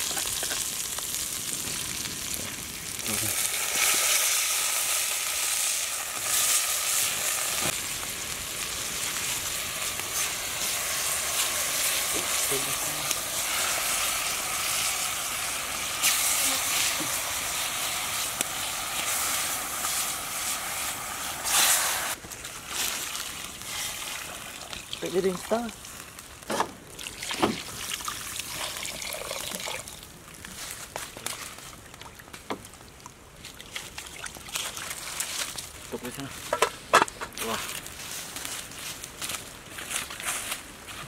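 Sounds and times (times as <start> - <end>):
fish frying in hot oil: 0.0 - 30.0.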